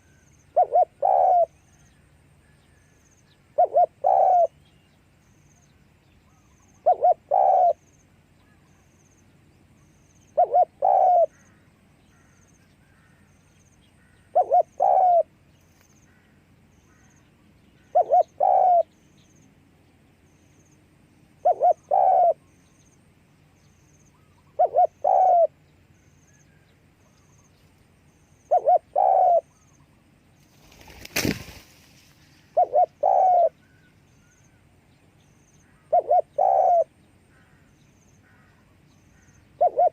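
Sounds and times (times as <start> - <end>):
dove cooing: 0.0 - 1.6, 3.5 - 4.6, 6.3 - 7.8, 10.4 - 11.5, 14.3 - 15.4, 17.8 - 19.0, 21.4 - 22.5, 24.2 - 25.6, 28.5 - 29.7, 32.4 - 33.8, 35.7 - 37.6, 39.1 - 39.9
brief rustle: 30.4 - 32.4.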